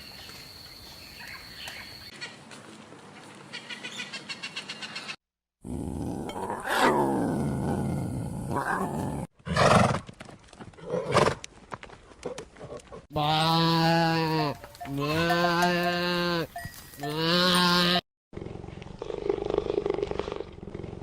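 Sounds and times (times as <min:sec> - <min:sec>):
big cat roaring and growling: 0:05.6 - 0:09.3.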